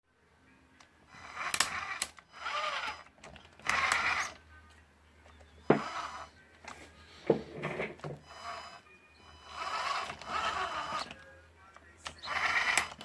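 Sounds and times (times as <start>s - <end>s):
electric motor whine: 1.1s - 4.4s, 5.6s - 11.2s, 12.0s - 13.0s.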